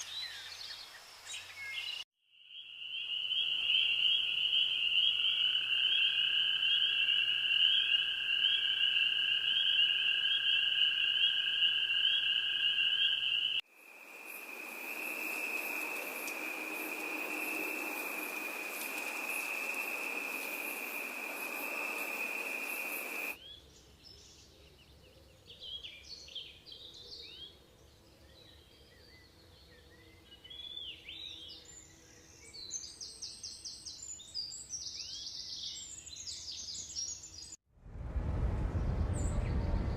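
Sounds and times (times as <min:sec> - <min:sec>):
bird chirps: 0:00.0 - 0:13.6.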